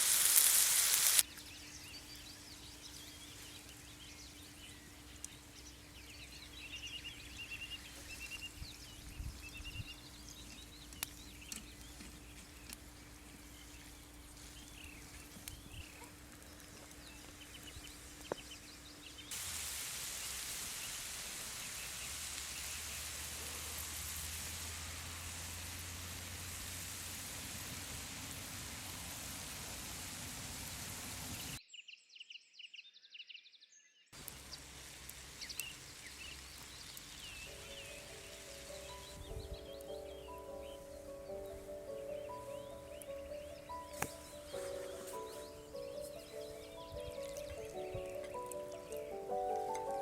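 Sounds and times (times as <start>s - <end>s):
frying sizzle: 0.0s - 1.4s, 19.3s - 31.6s, 34.2s - 50.0s
steady hiss: 0.0s - 31.6s, 34.2s - 50.0s
small birds chirping: 0.1s - 19.4s, 29.5s - 50.0s.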